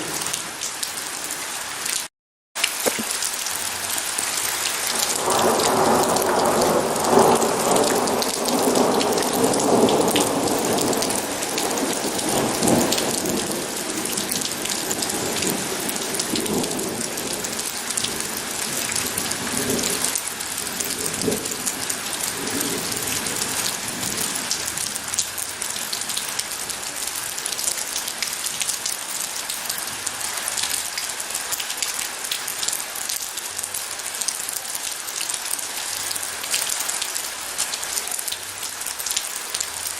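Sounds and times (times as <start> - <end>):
steady rain falling: 0.0 - 39.9
thunder rumbling: 4.9 - 24.8.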